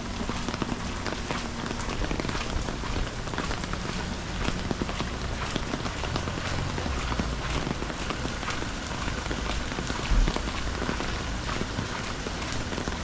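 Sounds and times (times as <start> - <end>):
raindrops ticking on microphone: 0.0 - 13.0
steady rain: 0.0 - 13.0.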